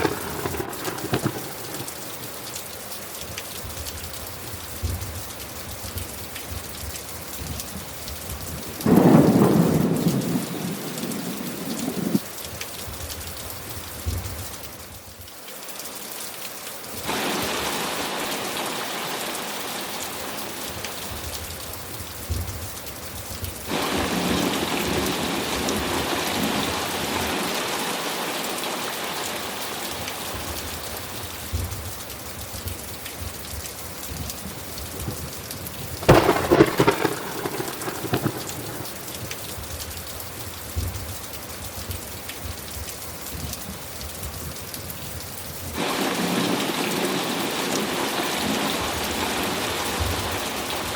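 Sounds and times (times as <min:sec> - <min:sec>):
thunder rumbling: 0:00.0 - 0:02.5, 0:08.6 - 0:12.2, 0:23.7 - 0:27.6, 0:35.9 - 0:39.8, 0:45.8 - 0:50.9
crackling thunderclap: 0:00.0 - 0:02.6, 0:08.3 - 0:12.3, 0:20.7 - 0:27.6, 0:32.6 - 0:40.1, 0:45.7 - 0:50.9
steady rain falling: 0:00.0 - 0:50.9.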